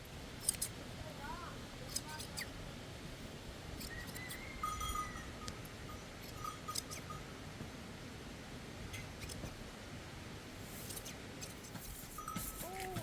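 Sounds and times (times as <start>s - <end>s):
hand shears clicking: 0.4s - 0.7s, 1.9s - 2.5s, 10.9s - 13.0s
thin high drawn-out call: 12.1s - 13.0s.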